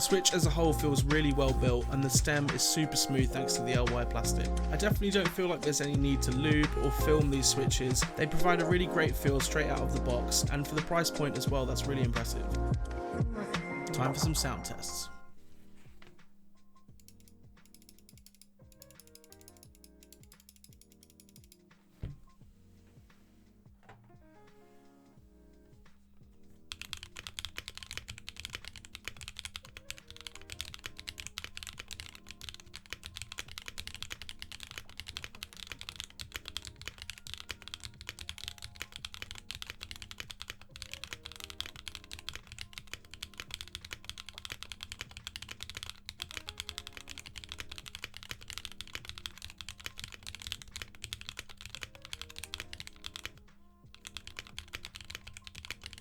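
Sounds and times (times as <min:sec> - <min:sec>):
soft background music: 0:00.0 - 0:56.0
mechanical keyboard key clacks: 0:26.7 - 0:56.0.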